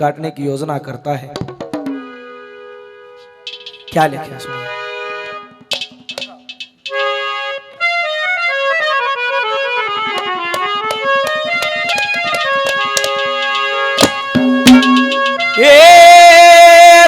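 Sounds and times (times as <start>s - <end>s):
harmonium melody: 1.9s - 16.2s
sharp drum strikes: 3.5s - 4.1s, 5.6s - 7.0s, 10.9s - 15.7s.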